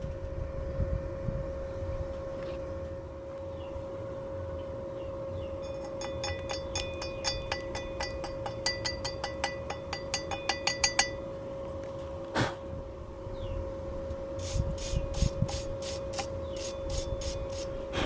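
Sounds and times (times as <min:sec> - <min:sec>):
steady hum: 0:00.0 - 0:18.0
metallic clinks: 0:05.6 - 0:12.2.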